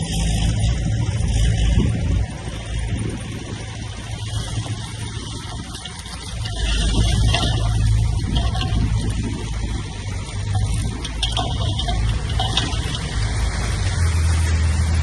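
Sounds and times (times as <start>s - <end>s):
diesel engine low drone: 0.0s - 15.0s.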